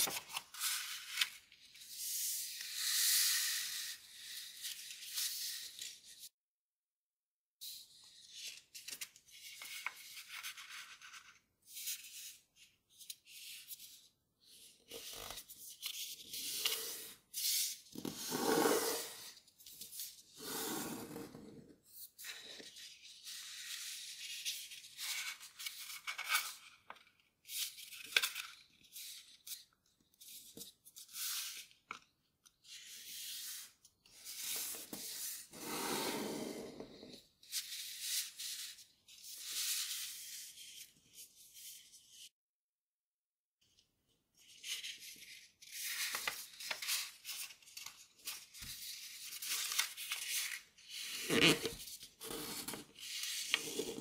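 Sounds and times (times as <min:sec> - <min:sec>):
paper rustling while folded: 0:44.4 - 0:51.6.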